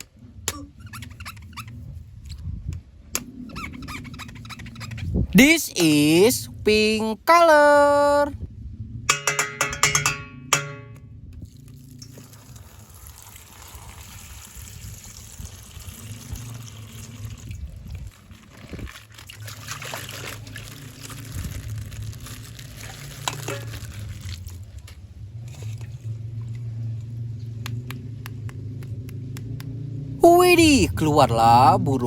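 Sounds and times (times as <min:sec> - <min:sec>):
water pouring and trickling: 0:11.3 - 0:27.4.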